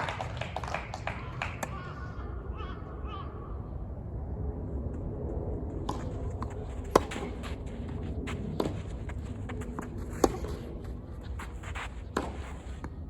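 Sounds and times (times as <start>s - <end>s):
outdoor rumble: 0.5s - 13.0s
tennis ball knocks: 5.9s - 7.4s.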